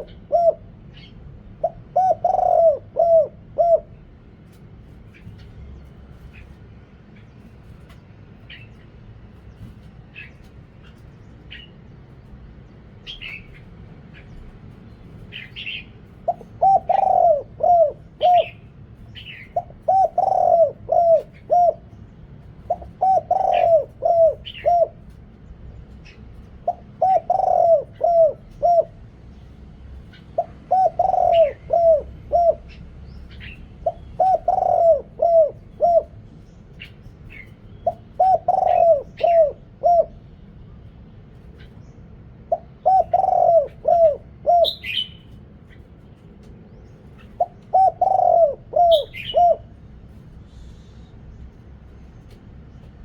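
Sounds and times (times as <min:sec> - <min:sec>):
dove cooing: 0:00.0 - 0:04.2, 0:15.2 - 0:29.1, 0:29.9 - 0:40.3, 0:41.4 - 0:45.9, 0:47.0 - 0:50.4.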